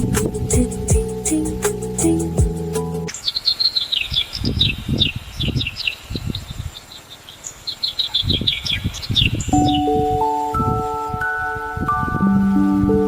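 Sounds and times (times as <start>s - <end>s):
background music: 0.0s - 3.1s, 9.6s - 13.0s.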